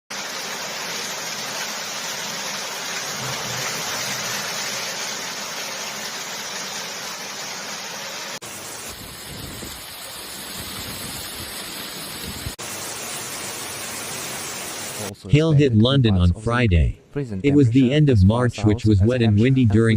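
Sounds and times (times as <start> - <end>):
hail and rain pelting: 0.1 - 15.1.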